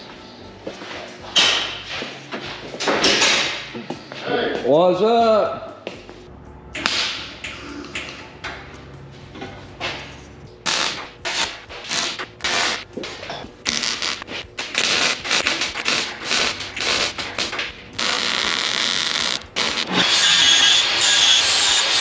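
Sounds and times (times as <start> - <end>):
steady rasping noise: 10.6 - 22.0.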